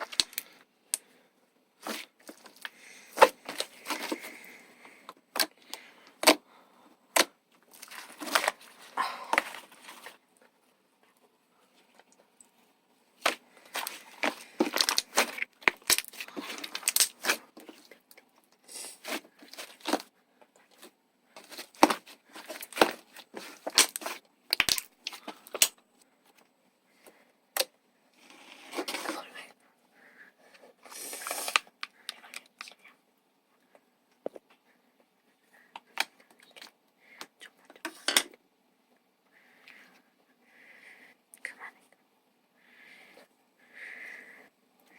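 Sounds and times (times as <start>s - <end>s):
slime squishing with clicks and pops: 23.7s - 25.8s.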